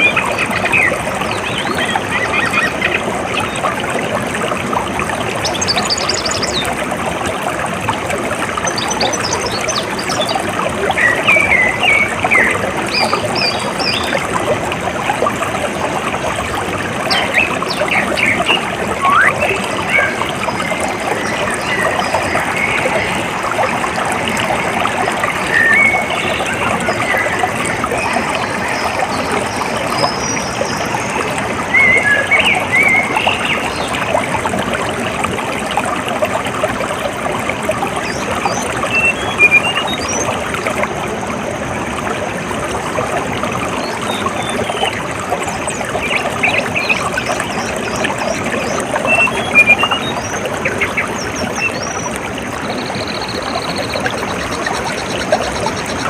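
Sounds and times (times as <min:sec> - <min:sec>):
water trickling: 0:00.0 - 0:56.0
birds chirping: 0:17.1 - 0:34.1, 0:43.8 - 0:56.0.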